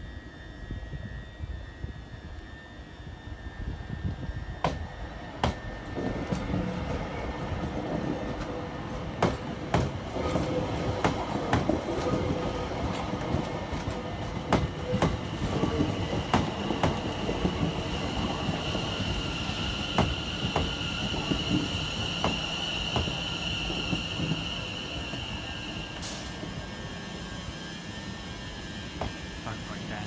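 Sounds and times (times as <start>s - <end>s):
train running on rails: 0.0s - 30.0s
high wheel squeal: 13.8s - 30.0s.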